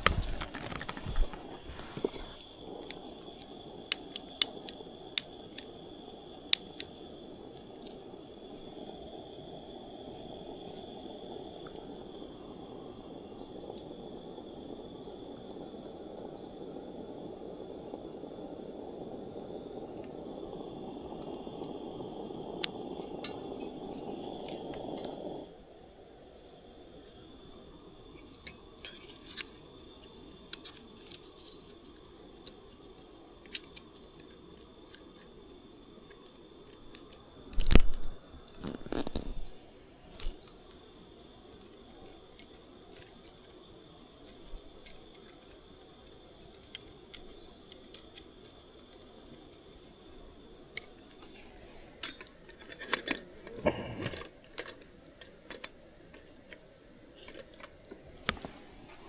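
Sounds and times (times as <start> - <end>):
clicks of objects being handled: 50.8 - 58.6.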